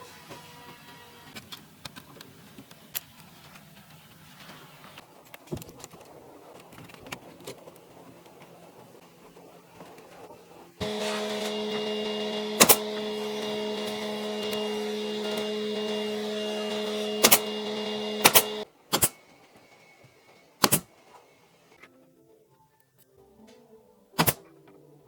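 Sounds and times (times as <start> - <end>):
small electric motor whirring: 10.8 - 18.7.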